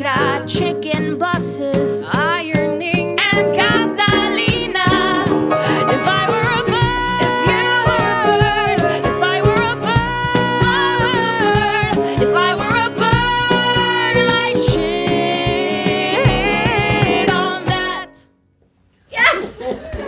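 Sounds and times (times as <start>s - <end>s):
strummed acoustic guitar: 0.0s - 18.2s
women singing wordless notes: 0.0s - 18.3s
steady drum beat: 2.1s - 18.1s.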